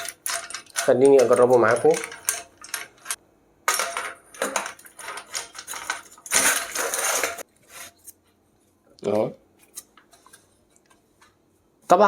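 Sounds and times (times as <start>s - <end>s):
metal parts clattering and scraping: 0.0s - 7.5s
metal rubbing scrape: 4.3s - 8.2s.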